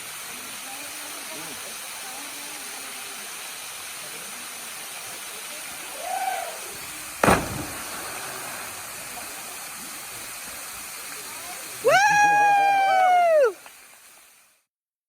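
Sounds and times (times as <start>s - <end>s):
waterfall rushing: 0.0s - 14.1s
loud splash into water: 6.0s - 10.2s.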